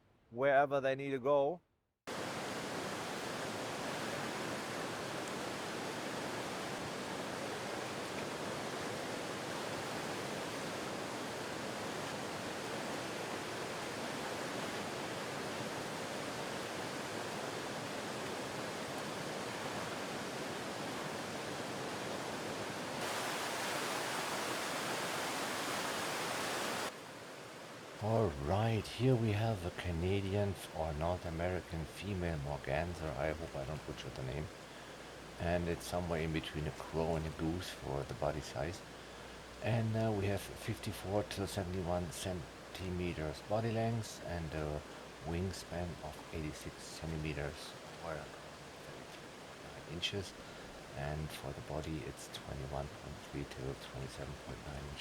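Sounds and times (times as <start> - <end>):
river rushing over cascade: 2.1 - 32.2.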